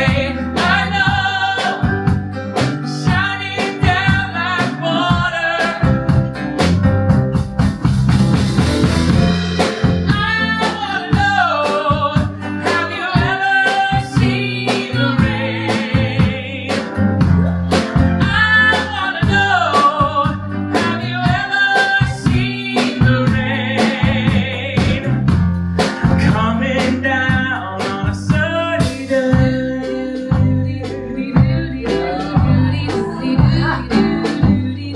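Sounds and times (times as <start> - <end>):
person singing: 0.0 - 6.4, 9.3 - 34.9
folk-rock band playing: 0.0 - 34.9.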